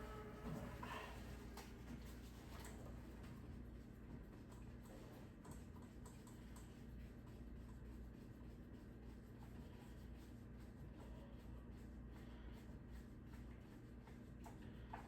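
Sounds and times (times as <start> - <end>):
low steady hum: 0.0 - 3.0.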